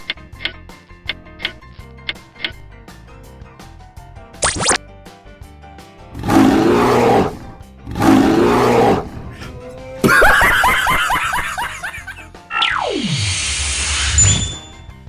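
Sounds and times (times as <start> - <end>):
light background music: 0.0 - 13.2
high falling chirps: 4.4 - 4.8
cartoon animal roars: 6.2 - 9.3.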